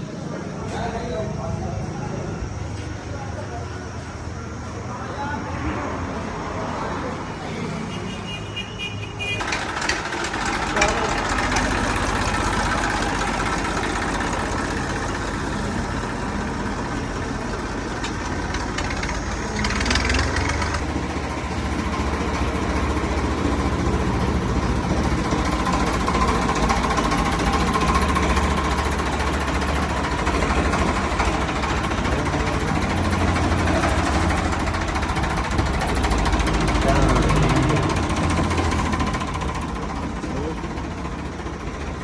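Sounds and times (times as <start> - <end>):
diesel tractor engine clattering: 0.0 - 42.0.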